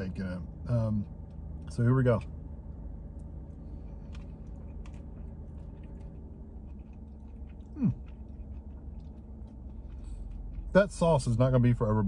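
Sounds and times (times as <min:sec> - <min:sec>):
low hum: 0:00.0 - 0:12.0
man chewing: 0:03.0 - 0:10.8
man humming mm: 0:07.7 - 0:08.1.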